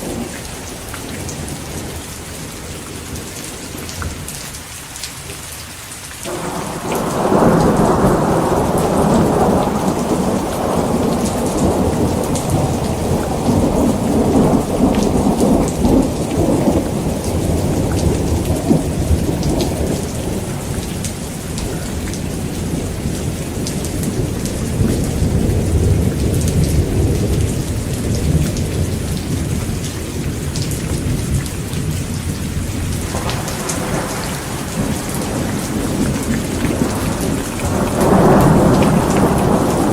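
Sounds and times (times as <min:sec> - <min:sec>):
heavy rain falling: 0:00.0 - 0:39.9
rolling thunder: 0:06.3 - 0:39.9.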